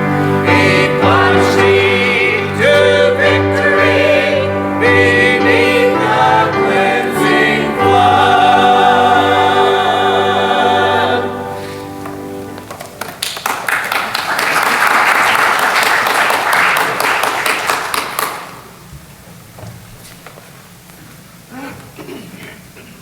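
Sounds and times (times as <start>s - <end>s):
church choir singing a hymn: 0.0s - 12.7s.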